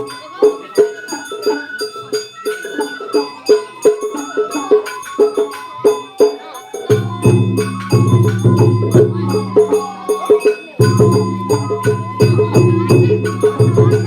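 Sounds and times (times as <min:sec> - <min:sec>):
flute melody: 0:00.0 - 0:14.0
struck percussion beat: 0:06.8 - 0:14.0.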